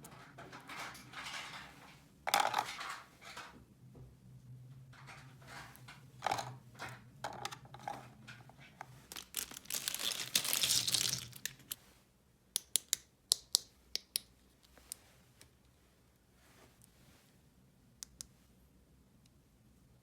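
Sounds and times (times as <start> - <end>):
plastic packaging crinkling and tearing: 9.0 - 11.8
small plastic pieces clicking: 9.1 - 11.8.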